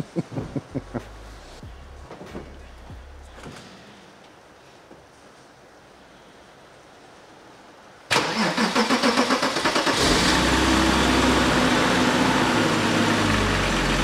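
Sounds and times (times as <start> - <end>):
car engine starting: 8.1 - 14.0.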